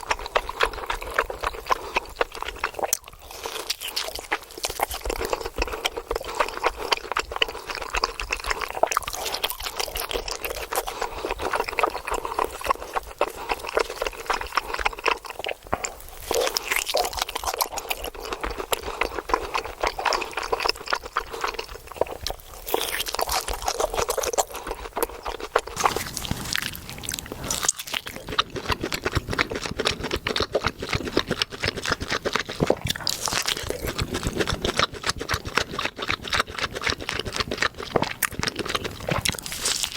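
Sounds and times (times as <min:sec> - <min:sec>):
steak crackling and crunching: 0:00.0 - 0:39.9
wet liquid sounds: 0:25.6 - 0:39.9.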